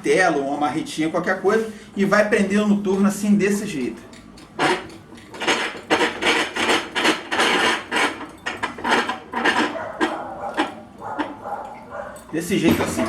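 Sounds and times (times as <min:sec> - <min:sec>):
metal clinks and scraping: 0:04.0 - 0:13.0.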